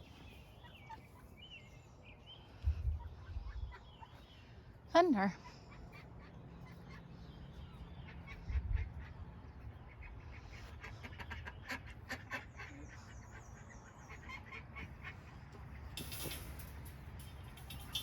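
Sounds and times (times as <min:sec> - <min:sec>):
ducks quacking: 0:05.4 - 0:15.9.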